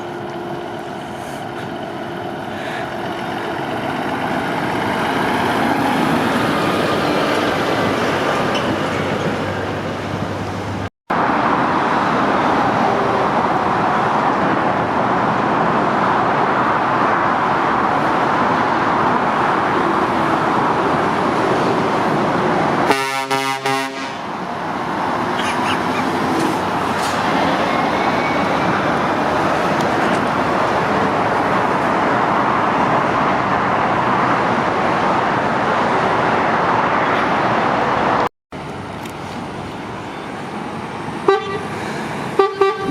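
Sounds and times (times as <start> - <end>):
heavy motorway traffic roar: 0.0 - 42.9
truck horn toot: 22.9 - 24.2, 41.2 - 41.7, 42.4 - 42.9.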